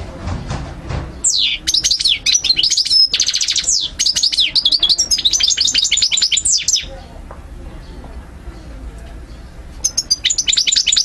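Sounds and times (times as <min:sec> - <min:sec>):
finch singing: 0:01.1 - 0:07.2, 0:08.6 - 0:11.0.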